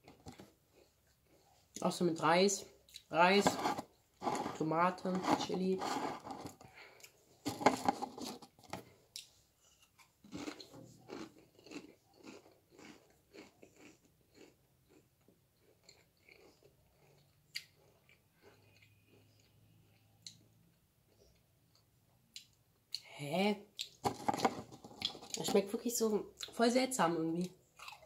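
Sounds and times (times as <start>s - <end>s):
crisps crunching while chewing: 9.2s - 19.6s, 23.8s - 25.6s, 27.8s - 28.0s.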